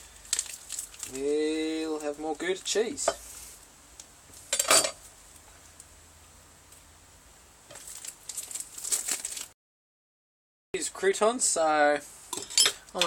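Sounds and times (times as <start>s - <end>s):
rustling and crinkling: 0.0s - 5.9s, 7.7s - 9.6s.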